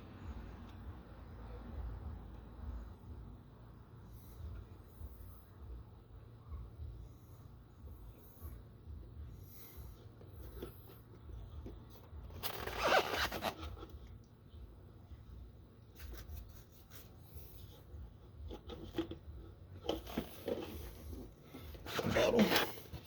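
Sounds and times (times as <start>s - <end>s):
low steady hum: 0.0s - 23.0s
plastic bottle scraping: 12.3s - 13.9s, 19.8s - 23.0s.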